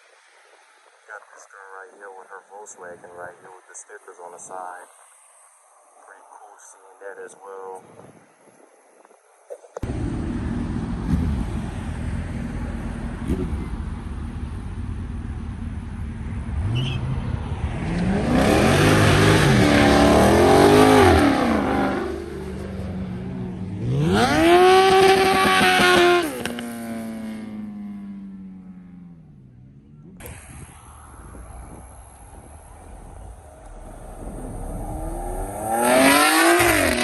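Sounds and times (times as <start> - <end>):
car engine revving: 9.8 - 37.0.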